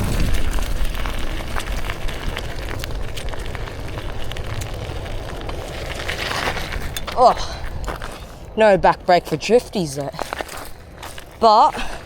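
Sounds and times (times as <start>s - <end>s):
bike clicks and rattles: 0.0s - 8.4s
bike tyre rumble on dirt: 0.0s - 12.0s
wind buffeting microphone: 0.0s - 12.0s.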